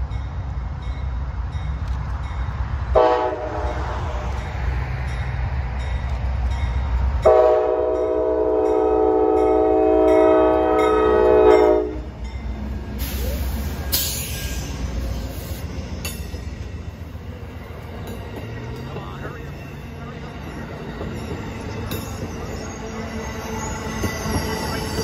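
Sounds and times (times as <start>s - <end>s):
locomotive engine rumble: 0.0s - 25.0s
train wheels rumbling on rails: 0.0s - 25.0s
train horn blast: 2.9s - 4.3s, 7.2s - 12.2s.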